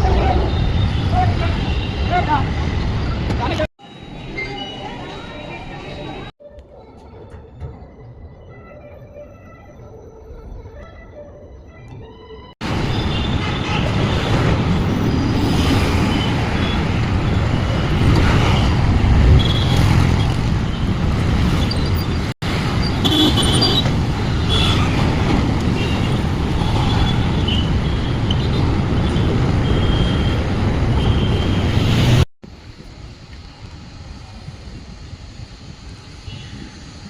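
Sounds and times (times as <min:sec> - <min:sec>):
passing vehicles: 0:12.6 - 0:37.0.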